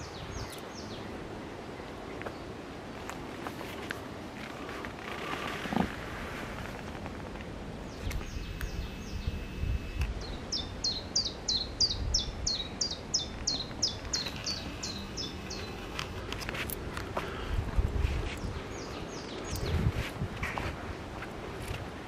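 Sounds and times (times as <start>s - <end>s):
wind on microphone: 4.5s - 22.0s.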